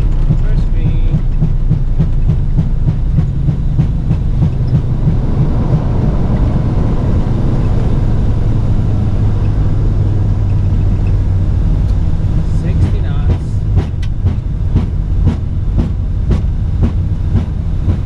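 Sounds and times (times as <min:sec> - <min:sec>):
rattling knocks: 0:00.0 - 0:05.9
aircraft rolling rumble: 0:00.0 - 0:18.0
low hum: 0:00.0 - 0:18.0.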